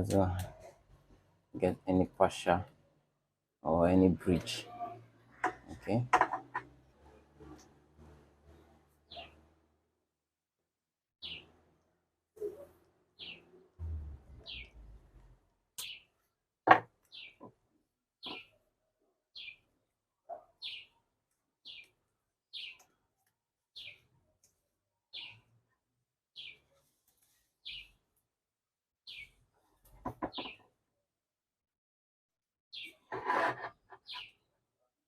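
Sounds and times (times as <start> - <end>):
bird chirping: 9.0 - 9.5, 11.2 - 11.5, 12.4 - 15.0, 17.0 - 17.5, 18.2 - 18.6, 19.3 - 19.7, 20.3 - 21.0, 21.6 - 23.0, 23.8 - 24.1, 25.1 - 25.5, 26.4 - 26.7, 27.6 - 28.0, 29.1 - 29.4, 32.7 - 33.1, 33.7 - 34.5.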